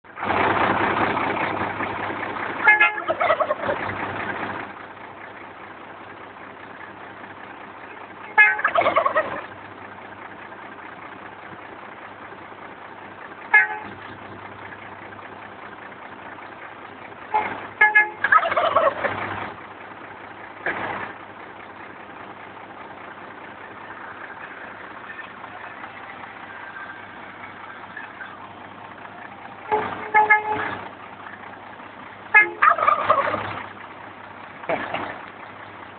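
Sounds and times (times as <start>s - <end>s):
truck engine idling: 0.0s - 35.9s
truck air horn toots: 2.6s - 3.6s, 8.2s - 8.9s, 13.5s - 14.0s, 17.3s - 18.4s, 29.6s - 30.9s, 32.3s - 33.0s
turkeys gobbling: 3.0s - 3.9s, 8.4s - 9.6s, 18.2s - 19.2s, 32.4s - 33.6s.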